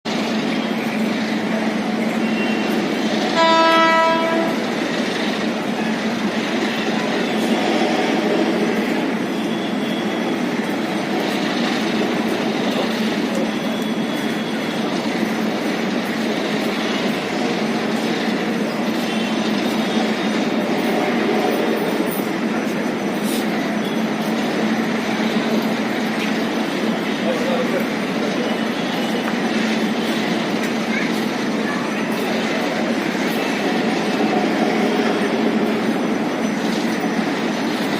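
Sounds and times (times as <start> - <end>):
train wheels clattering on rails: 0.1 - 37.9
train horn: 3.3 - 4.6.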